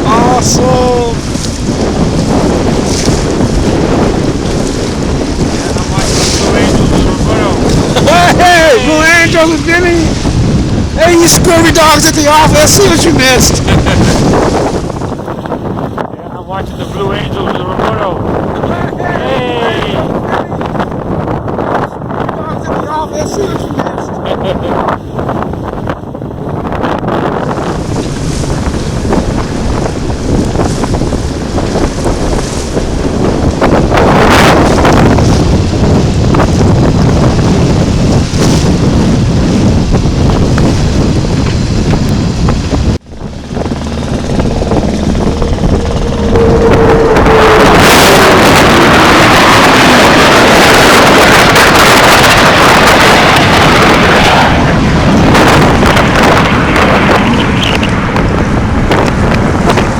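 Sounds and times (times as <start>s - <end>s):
wind buffeting microphone: 0.0s - 59.9s
tone sliding downward: 43.1s - 50.1s.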